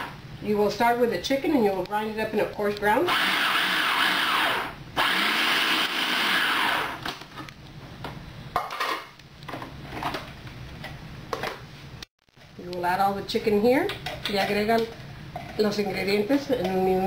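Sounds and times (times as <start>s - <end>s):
electric food grinder running: 3.1s - 7.0s.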